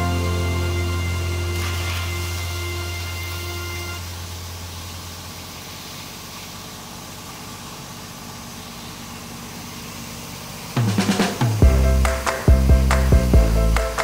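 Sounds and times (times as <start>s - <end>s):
low hum: 0.0s - 5.4s
wood crusher machine running: 0.0s - 5.9s.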